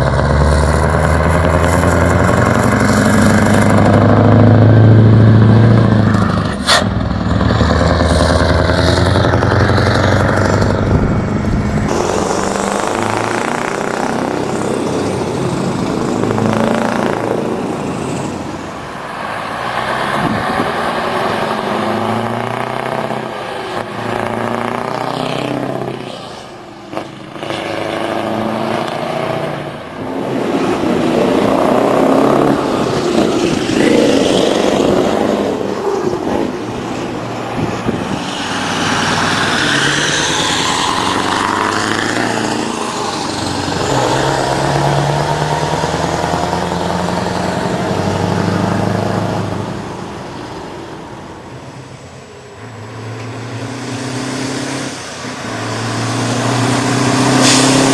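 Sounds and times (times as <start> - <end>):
truck engine revving: 0.0 - 57.9.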